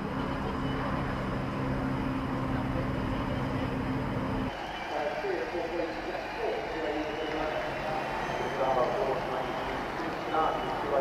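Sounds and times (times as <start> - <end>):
racing car engines running: 0.0 - 4.6.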